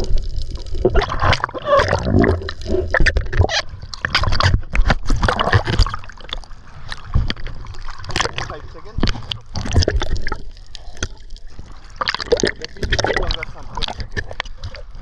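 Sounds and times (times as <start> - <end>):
short irregular crackles: 0.0 - 15.0
water gurgling and splashing: 0.0 - 15.0.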